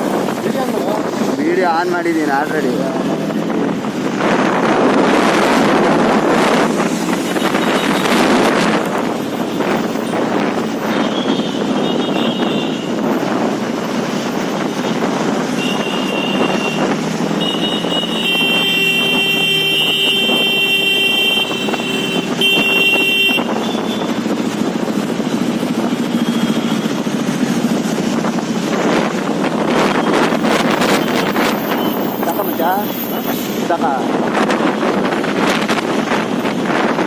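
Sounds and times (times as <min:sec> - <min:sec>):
motorcycle engines: 0:00.0 - 0:37.0
road traffic: 0:00.0 - 0:37.0
vehicle horns honking: 0:07.2 - 0:08.6, 0:11.0 - 0:13.0, 0:15.5 - 0:24.2.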